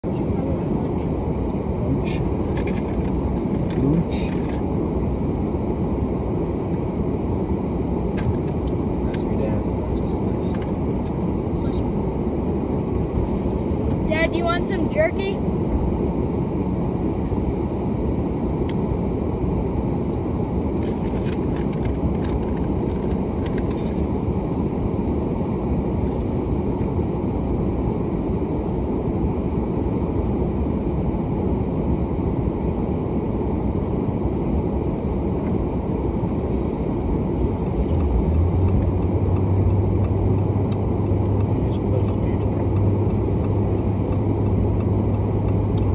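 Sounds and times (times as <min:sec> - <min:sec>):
low steady hum: 0:00.0 - 0:45.9
vehicle engine idling: 0:37.6 - 0:45.9.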